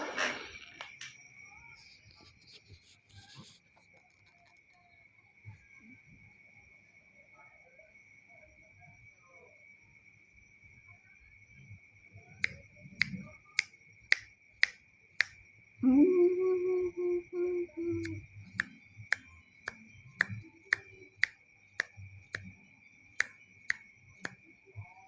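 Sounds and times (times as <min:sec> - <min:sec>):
sharp regular clicks: 0:14.1 - 0:15.4.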